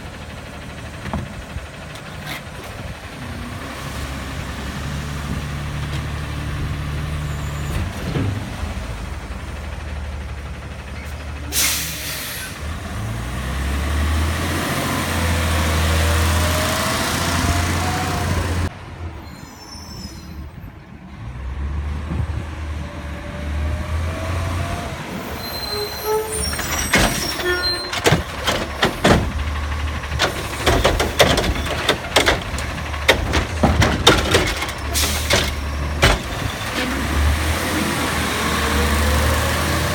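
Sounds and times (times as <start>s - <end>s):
garbage truck engine running: 0.0s - 14.4s, 25.2s - 39.9s
air brake hiss: 11.5s - 12.6s
bins banging and clattering: 26.2s - 37.8s.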